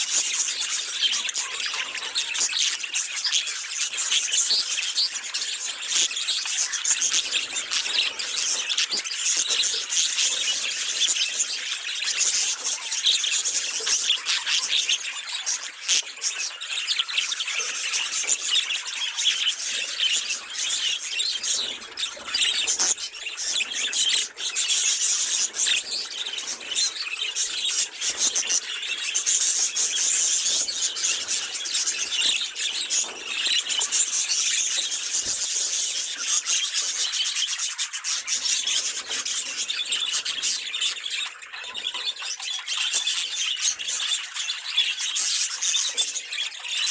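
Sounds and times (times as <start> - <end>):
budgerigars warbling and chattering: 0.0 - 46.9.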